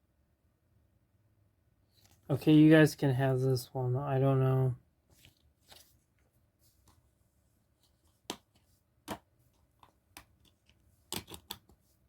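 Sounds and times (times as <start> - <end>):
plastic disc case handling: 5.2 - 6.0
sharp clicks of disc case: 10.1 - 11.7.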